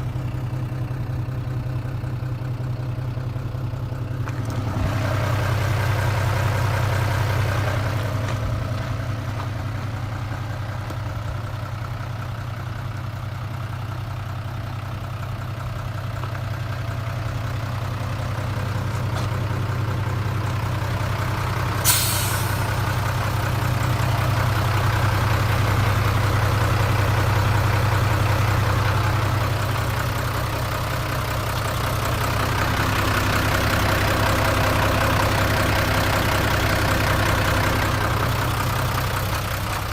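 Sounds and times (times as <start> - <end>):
diesel truck engine idling: 0.0 - 39.9
air hiss: 21.8 - 22.7.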